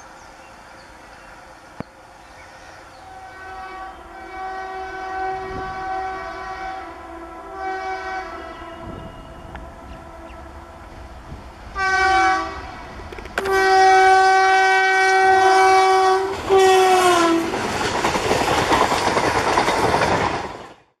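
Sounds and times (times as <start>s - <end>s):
train coaches rumbling and clattering: 0.0s - 20.9s
locomotive air horn blasts: 3.0s - 17.5s.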